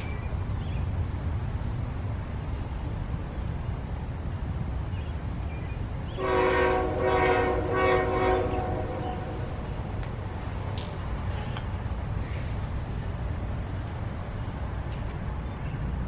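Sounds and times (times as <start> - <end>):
steady low rumble: 0.0 - 16.0
locomotive air horn: 6.2 - 9.5.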